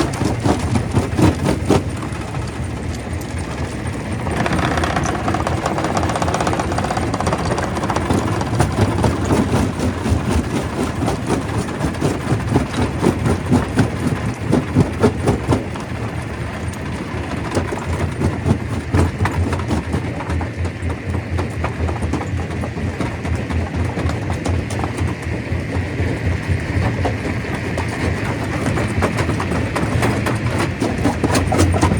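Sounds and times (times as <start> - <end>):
stone crusher drone: 0.0 - 16.8.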